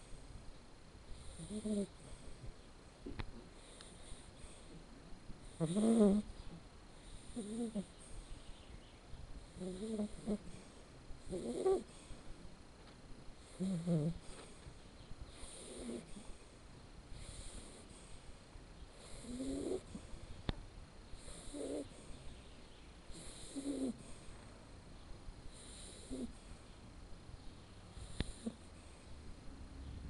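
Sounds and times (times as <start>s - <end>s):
puppy snoring: 1.1s - 2.5s, 3.4s - 8.4s, 9.4s - 12.5s, 13.4s - 14.6s, 15.3s - 20.4s, 21.1s - 24.4s, 25.5s - 26.8s, 27.9s - 29.1s.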